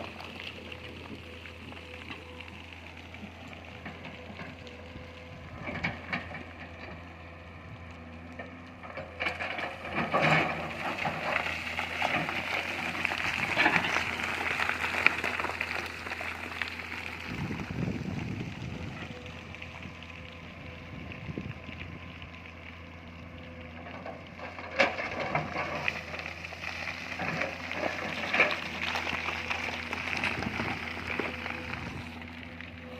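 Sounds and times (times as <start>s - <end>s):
excavator engine hum: 0.0s - 32.9s
crackling and snapping: 8.2s - 17.8s, 24.4s - 32.9s.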